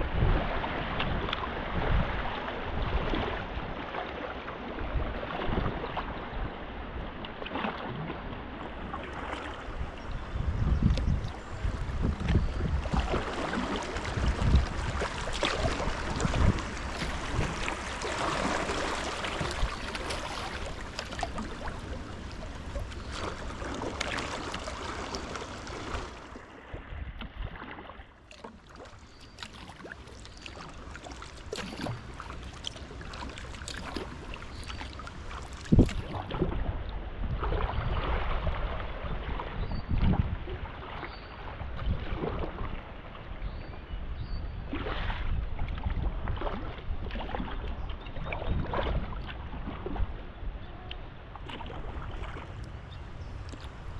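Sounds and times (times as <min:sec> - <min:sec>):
wind rumbling on microphone: 0:00.0 - 0:28.0, 0:29.8 - 0:53.9
water splashing around paddle: 0:00.0 - 0:43.3, 0:44.7 - 0:53.9.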